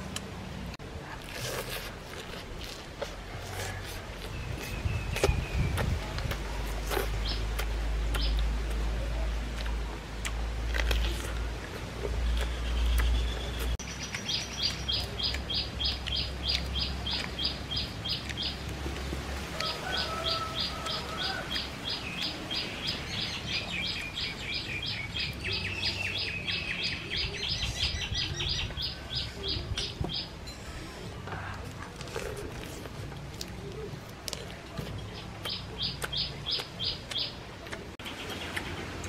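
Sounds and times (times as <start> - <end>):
bird chirping: 12.2 - 18.8, 19.6 - 30.8, 35.0 - 37.4.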